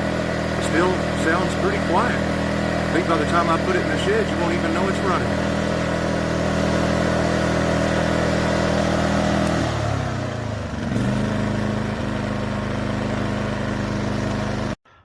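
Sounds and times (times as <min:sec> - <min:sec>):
generator engine running: 0:00.0 - 0:14.8.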